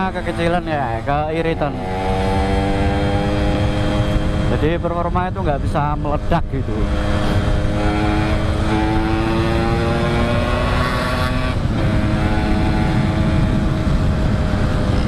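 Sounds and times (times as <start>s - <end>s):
motorcycle engine accelerating: 0.0s - 15.0s
road rumble: 0.0s - 15.0s
wind: 0.0s - 15.0s.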